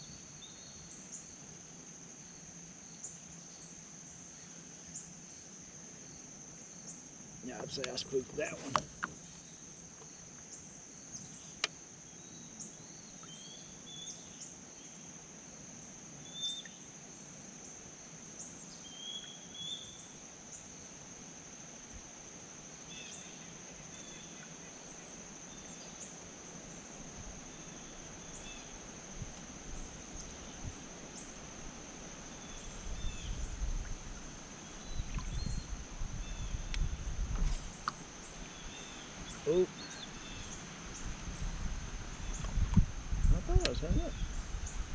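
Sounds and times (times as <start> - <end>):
insects trilling: 0.0 - 44.9
bird chirps: 37.8 - 40.6.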